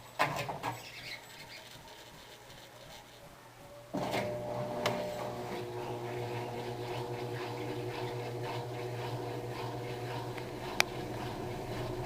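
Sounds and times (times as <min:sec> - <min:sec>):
washing machine motor hum: 0:03.9 - 0:12.0.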